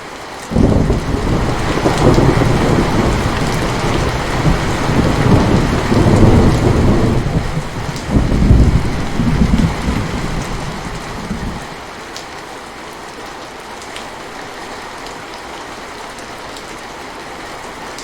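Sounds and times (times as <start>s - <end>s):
steady rain falling: 0.0s - 18.0s
low thunder rumbling: 0.5s - 11.8s.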